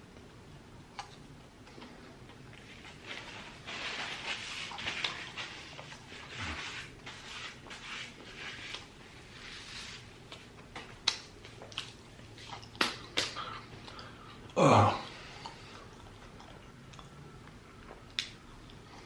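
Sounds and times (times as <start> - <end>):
person chewing: 10.2 - 19.0
lip-smack clicks: 11.0 - 12.0.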